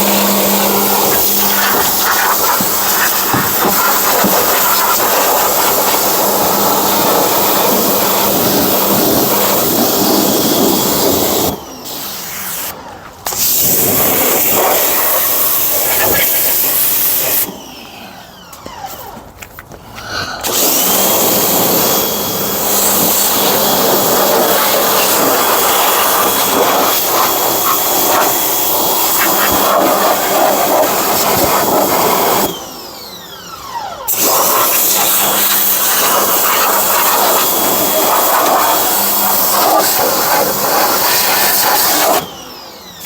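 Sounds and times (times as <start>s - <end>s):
pump humming: 0.0s - 10.4s
pressure washer water jet hiss: 0.0s - 12.7s, 13.3s - 17.5s, 20.4s - 32.5s, 34.1s - 42.3s.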